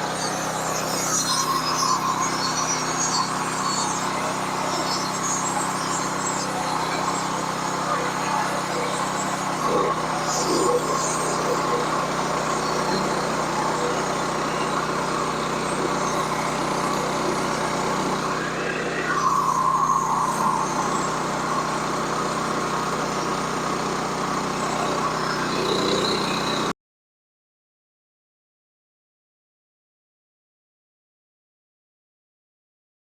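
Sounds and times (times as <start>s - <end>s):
blade sawing through log: 0.0s - 23.8s
sawmill engine running: 0.0s - 26.7s.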